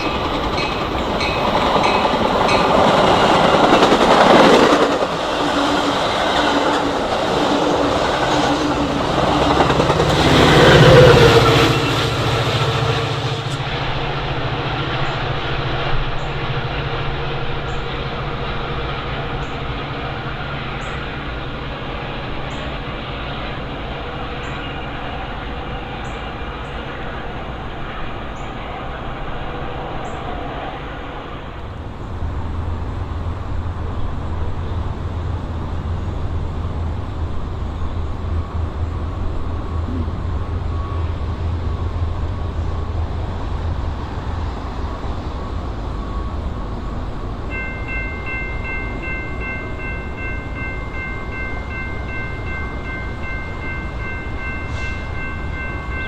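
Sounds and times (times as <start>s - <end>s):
train rumbling past: 0.0s - 56.0s.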